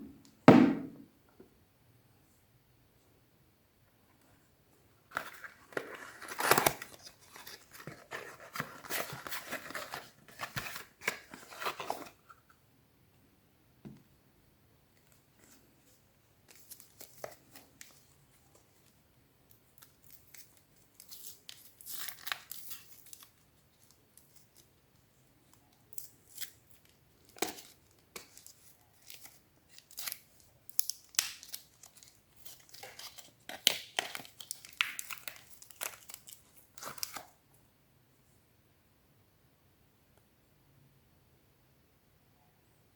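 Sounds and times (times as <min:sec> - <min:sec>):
wrappers crinkling and tearing: 0:25.9 - 0:37.3.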